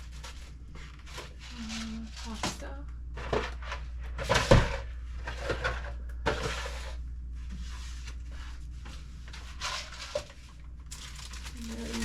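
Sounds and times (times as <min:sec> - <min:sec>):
low steady hum: 0:00.0 - 0:12.0
packaging rustling: 0:10.9 - 0:12.0.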